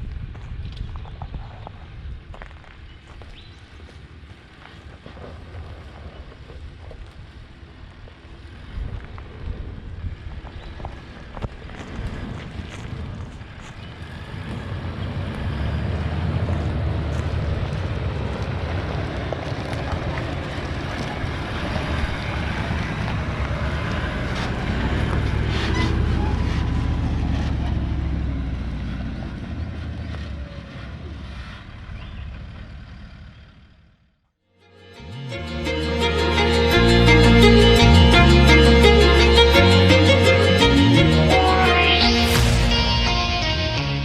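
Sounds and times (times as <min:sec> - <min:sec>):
wind buffeting microphone: 0:00.0 - 0:32.5.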